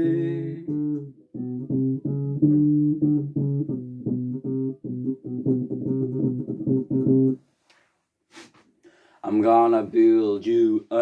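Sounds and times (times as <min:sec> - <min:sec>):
bass guitar riff: 0:00.0 - 0:07.4.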